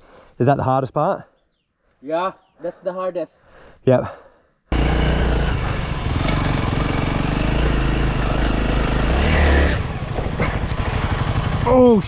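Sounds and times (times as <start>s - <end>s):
dirt bike engine revving: 4.7s - 12.0s.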